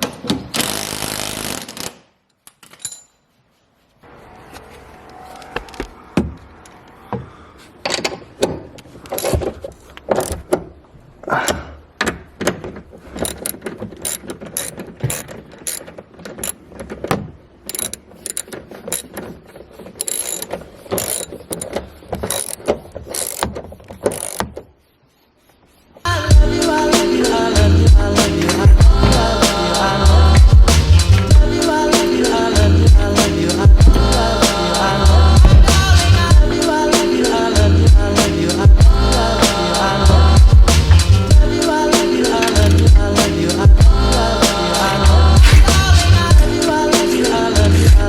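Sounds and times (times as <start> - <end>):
ratchet wrench clicking: 13.2 - 16.6, 17.7 - 19.1, 20.0 - 21.7, 22.3 - 23.5, 24.1 - 24.4.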